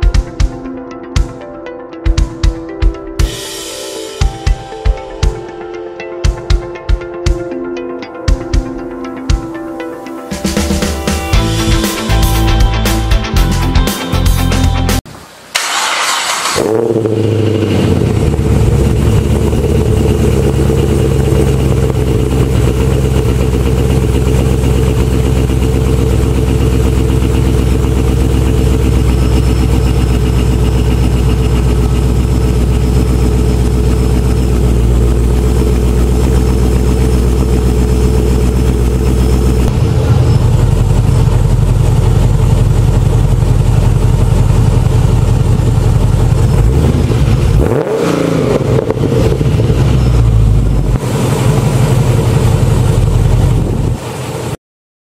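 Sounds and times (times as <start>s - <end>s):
car engine idling: 15.5s - 54.6s.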